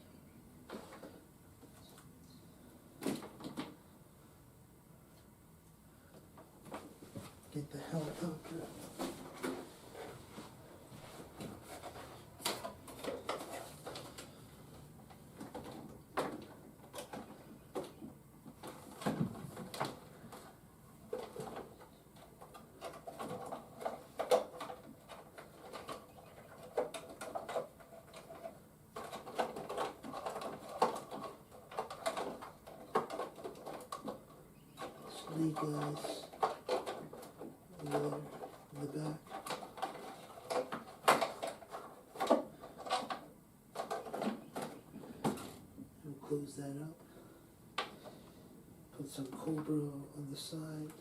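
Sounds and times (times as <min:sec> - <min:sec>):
plastic toys clicking and rattling: 0:11.8 - 0:14.4, 0:21.1 - 0:45.6
plastic squeaks: 0:21.1 - 0:43.2.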